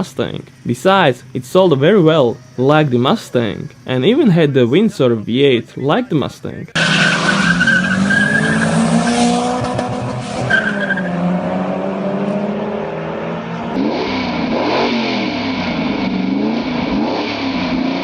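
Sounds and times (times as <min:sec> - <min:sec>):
tyres squealing: 0:00.0 - 0:09.5, 0:10.3 - 0:11.3
car engine revving: 0:06.7 - 0:18.0.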